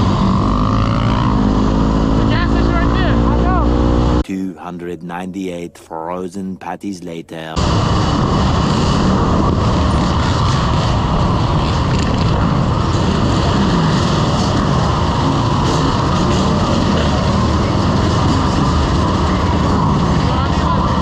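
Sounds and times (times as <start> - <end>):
motorcycle engine running: 0.0 - 4.2, 8.2 - 21.0
wind rushing over microphone: 7.6 - 21.0.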